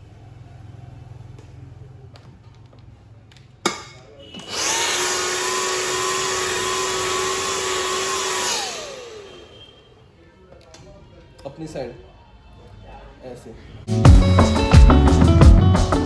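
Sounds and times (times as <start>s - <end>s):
hair dryer running: 4.4s - 9.5s.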